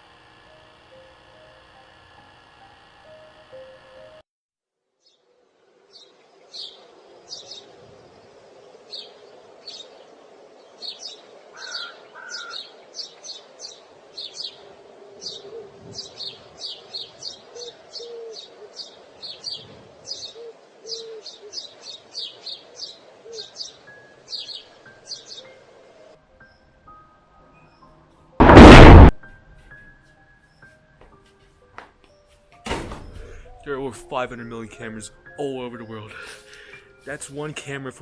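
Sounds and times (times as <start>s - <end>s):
small birds chirping: 5.8s - 25.6s.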